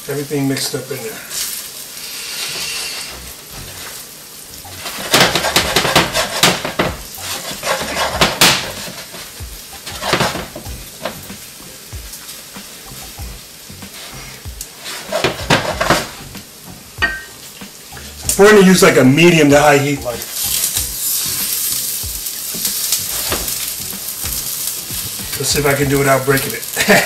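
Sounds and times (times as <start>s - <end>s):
food sizzling in a frying pan: 0.0s - 27.0s
metal cookware clattering: 4.7s - 11.2s, 14.8s - 16.2s, 17.0s - 17.4s.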